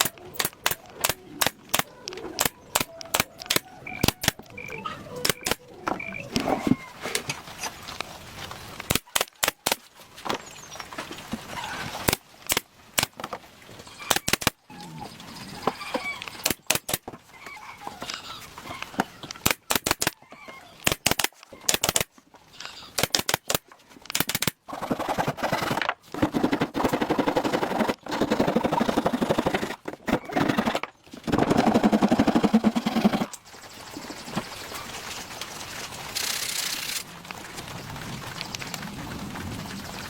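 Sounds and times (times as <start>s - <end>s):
sharp rapid knocks: 23.0s - 33.4s.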